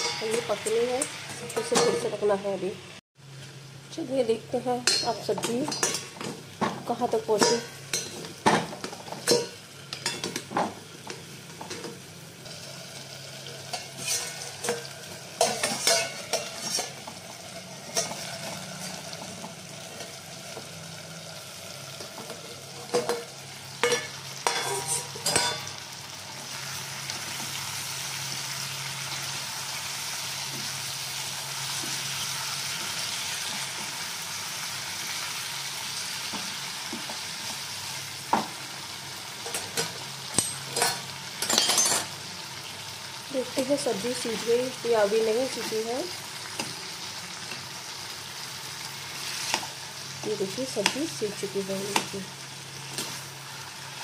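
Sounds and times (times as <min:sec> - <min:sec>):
metal lid and pan clinking: 0:00.0 - 0:00.6, 0:09.2 - 0:10.4, 0:13.7 - 0:17.0, 0:22.8 - 0:25.8
cucumber sizzling in a pan: 0:00.0 - 0:54.0.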